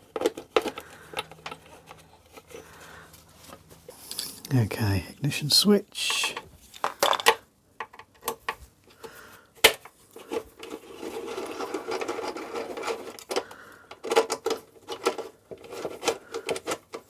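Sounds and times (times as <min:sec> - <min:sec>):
metal parts clicking and knocking: 0:09.7 - 0:17.0.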